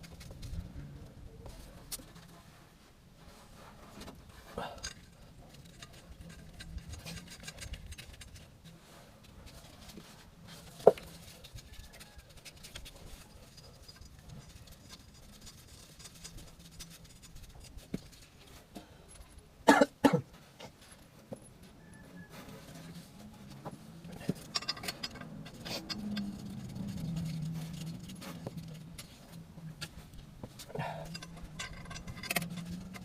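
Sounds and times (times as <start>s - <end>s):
tools knocking on metal parts: 24.2s - 27.5s, 31.0s - 33.0s.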